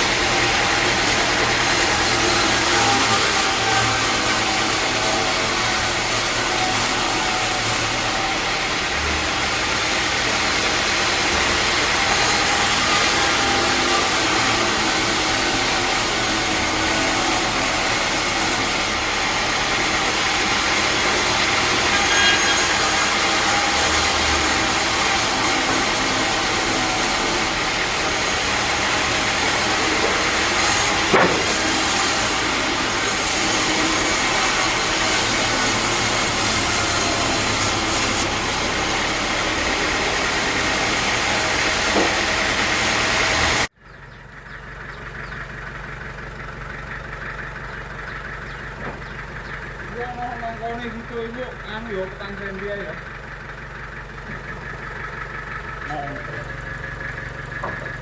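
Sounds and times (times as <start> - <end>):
bandsaw running: 0.0 - 43.7.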